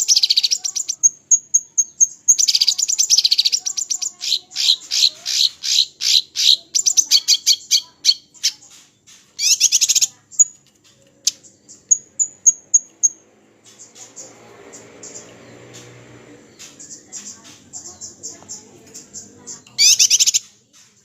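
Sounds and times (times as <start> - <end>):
songbird singing: 0.0 - 21.0.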